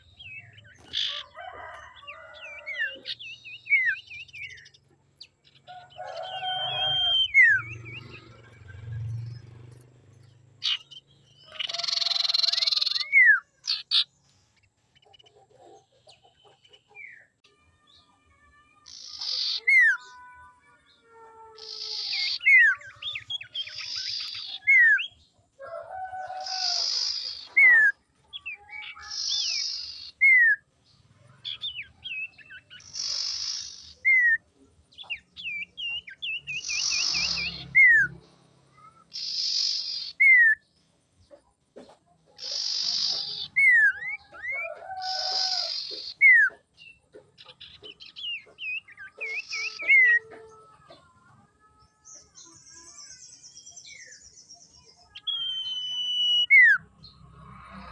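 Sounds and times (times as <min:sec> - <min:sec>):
birds calling buzzy rasp and whistle: 0:00.0 - 0:17.5, 0:18.8 - 0:40.9, 0:42.3 - 0:50.4, 0:52.0 - 0:57.9
fast wavering bird trill: 0:05.6 - 0:09.1, 0:10.6 - 0:14.1, 0:55.2 - 0:56.9.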